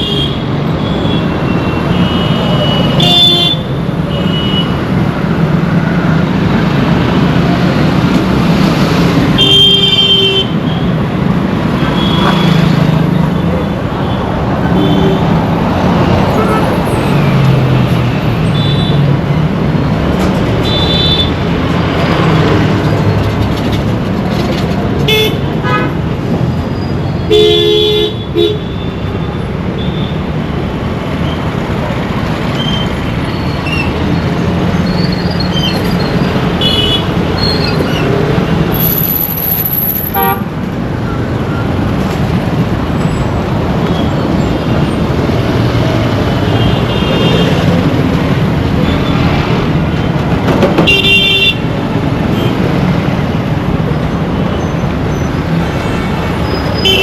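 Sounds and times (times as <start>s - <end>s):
traffic engines and tyres: 0.0s - 57.0s
vehicle horns tooting: 16.3s - 17.4s, 50.8s - 51.7s, 55.5s - 57.0s.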